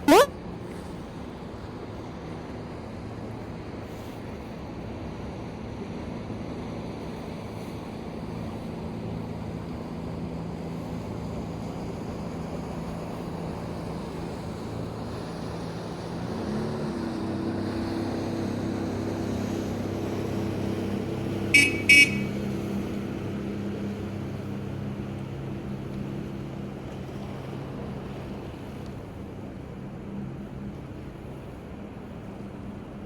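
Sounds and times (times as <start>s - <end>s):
high-pitched beeps: 0.0s - 0.3s, 21.6s - 22.3s.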